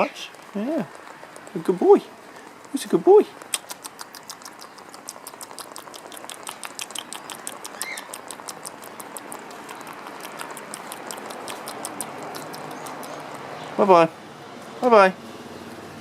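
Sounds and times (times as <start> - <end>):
rapid sharp clicks: 0.2 - 13.5
rising bird chirp: 7.1 - 8.2.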